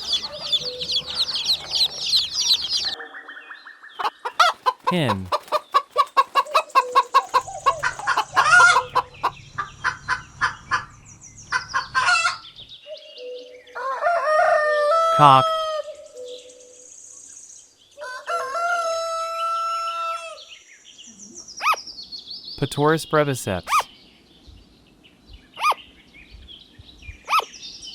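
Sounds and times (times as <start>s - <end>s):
hen clucking: 0.0s - 3.0s, 4.0s - 12.6s
rooster crowing: 0.0s - 3.0s, 6.4s - 10.9s, 13.7s - 15.9s, 18.0s - 20.4s.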